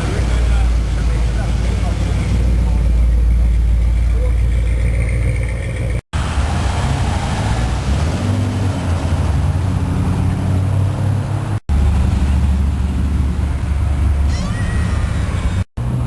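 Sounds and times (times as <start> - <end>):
deep engine note: 0.0 - 6.0
car engines cruising past: 0.0 - 16.0.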